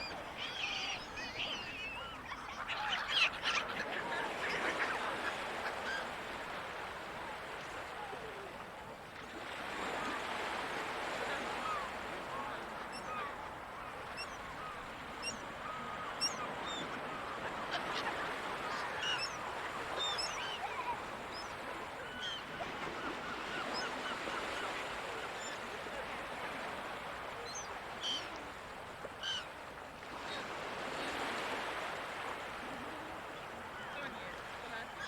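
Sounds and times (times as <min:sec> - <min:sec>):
gulls calling: 0:00.0 - 0:08.5, 0:09.7 - 0:28.5, 0:29.1 - 0:29.6
surf washing: 0:00.0 - 0:35.0.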